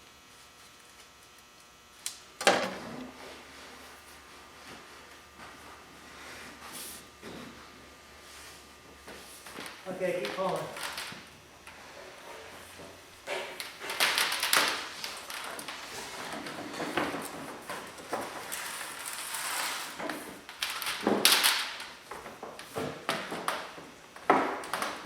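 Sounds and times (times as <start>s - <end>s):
pipes scraping and rustling: 11.7s - 20.5s.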